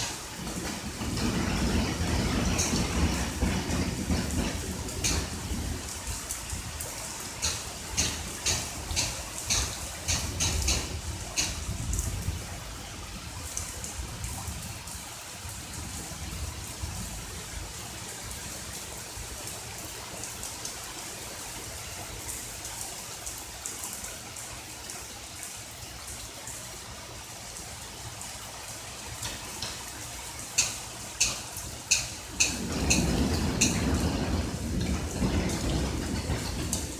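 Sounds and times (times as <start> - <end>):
steady rain falling: 0.0 - 36.9
drops ticking close by: 6.1 - 12.0, 29.2 - 33.8.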